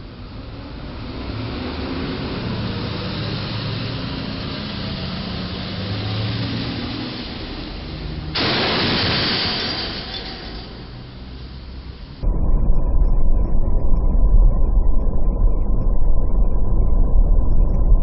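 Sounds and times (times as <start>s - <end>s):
car engine and road noise: 0.0s - 12.2s
sudden loud noise: 8.4s - 18.0s.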